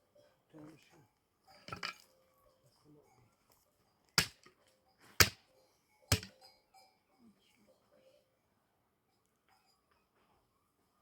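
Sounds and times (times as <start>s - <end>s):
faint small noises: 0.0s - 11.0s
sharp knocks: 6.1s - 6.3s.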